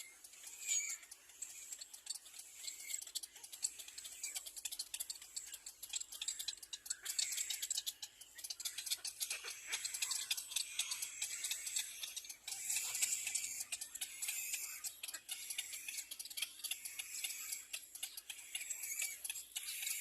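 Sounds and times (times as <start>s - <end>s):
baby birds chirping: 0.0s - 20.0s.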